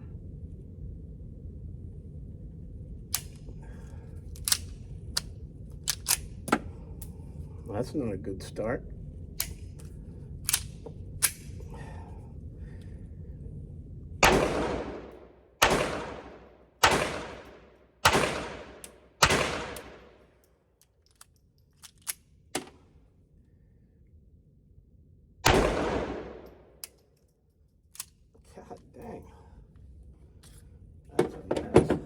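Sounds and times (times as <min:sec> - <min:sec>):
pistol shots echoing: 0:14.2 - 0:20.2, 0:25.4 - 0:26.6.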